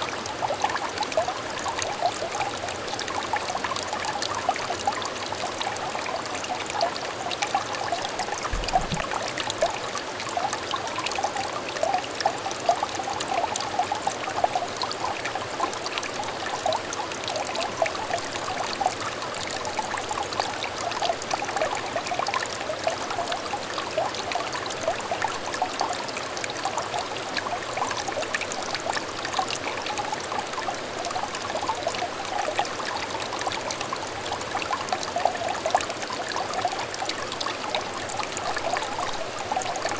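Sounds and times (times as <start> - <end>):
stream burbling over stones: 0.0 - 39.9
faint low thump: 8.3 - 9.2.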